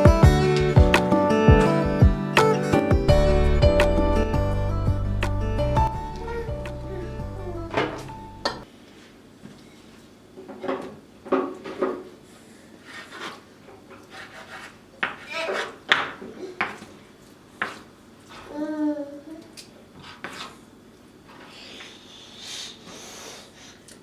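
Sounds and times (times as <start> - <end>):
rubbing and scraping strokes: 12.8 - 15.8, 20.0 - 20.6.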